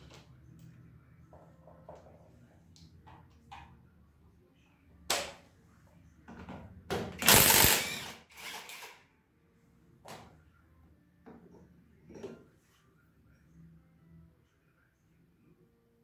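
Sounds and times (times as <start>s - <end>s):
metal parts knocking and clattering: 7.2s - 8.1s
loud rattling clatter: 7.2s - 8.2s.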